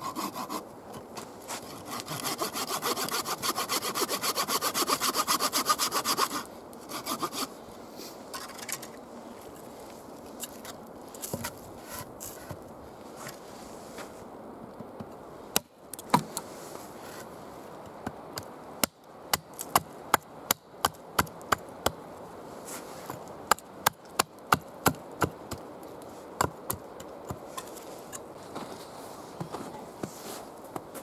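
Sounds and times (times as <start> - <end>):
wood being chopped: 18.8 - 22.0.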